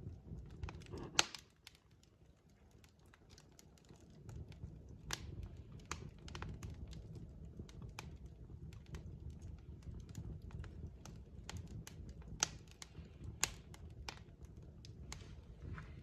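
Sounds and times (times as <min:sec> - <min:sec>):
loud pops of fire: 0:00.0 - 0:02.0, 0:02.8 - 0:16.0
low rumble of flames: 0:00.0 - 0:16.0
wood fire crackling: 0:00.0 - 0:16.0.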